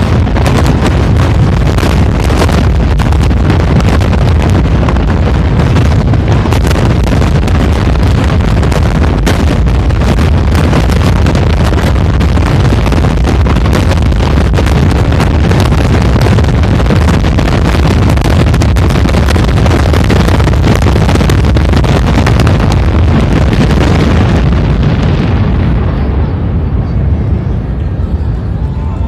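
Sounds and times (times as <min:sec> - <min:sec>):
fireworks bangs and crackling: 0:00.0 - 0:29.0
low rumble: 0:00.0 - 0:29.0.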